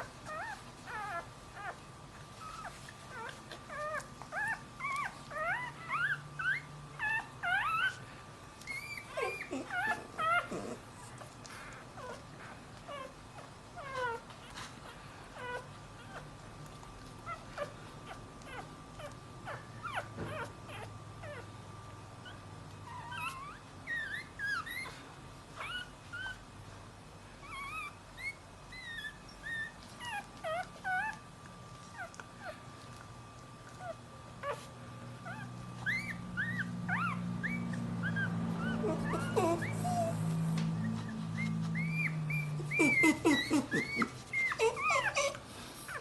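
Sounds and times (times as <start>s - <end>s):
puppy whimpering and crying: 0.0s - 16.4s, 17.2s - 21.5s, 22.2s - 26.5s, 27.4s - 32.6s, 33.7s - 46.0s.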